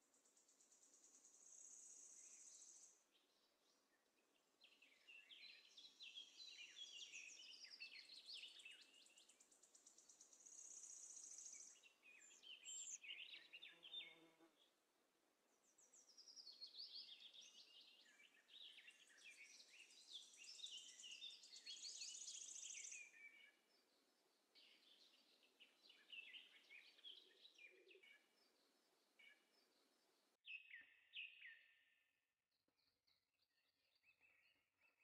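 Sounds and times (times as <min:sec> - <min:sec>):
many small birds chirping: 0:04.6 - 0:14.3, 0:15.7 - 0:23.8, 0:24.6 - 0:28.6.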